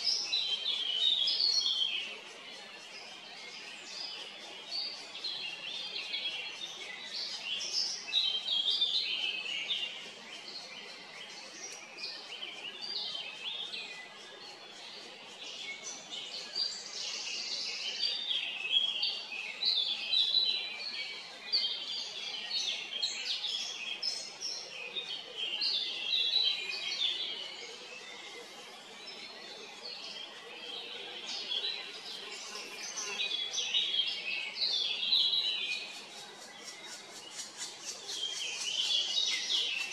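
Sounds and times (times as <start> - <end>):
birds chirping: 25.9 - 39.9.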